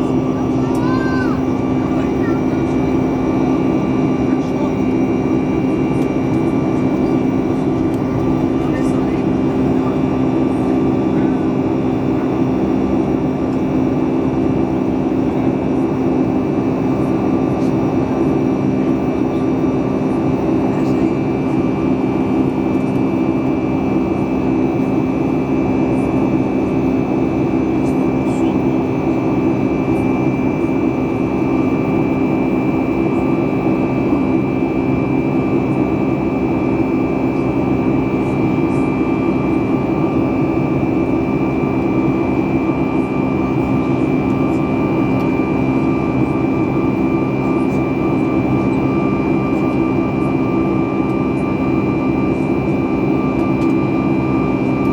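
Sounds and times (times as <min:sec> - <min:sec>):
jet engine and airflow drone: 0:00.0 - 0:54.9.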